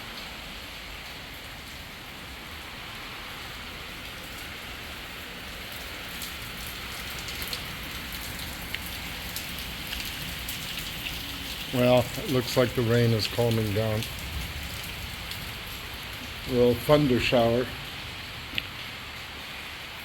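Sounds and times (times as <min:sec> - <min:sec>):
heavy rain hissing: 0:00.0 - 0:20.0
raindrops ticking close by: 0:00.0 - 0:20.0.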